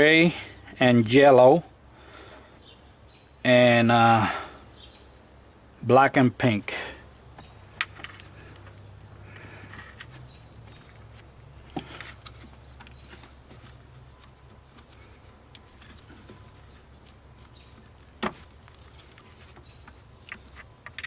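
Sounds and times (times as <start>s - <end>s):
light clicks and handling noises: 7.1s - 21.0s.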